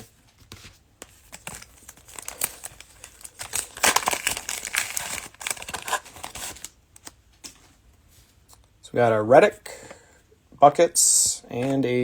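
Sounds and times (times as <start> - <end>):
cellophane crinkling and tearing: 1.1 - 7.2.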